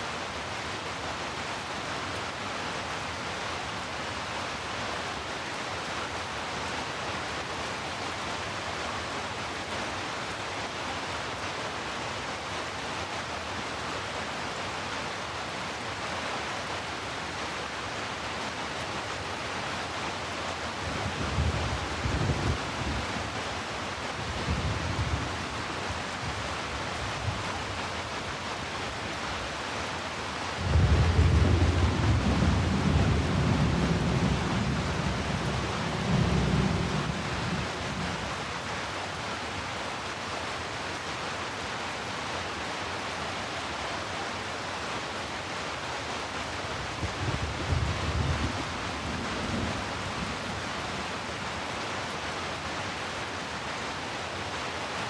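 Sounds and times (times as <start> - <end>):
heavy rain: 0.0 - 55.0
thunder rumbling: 30.6 - 38.2, 47.0 - 50.8.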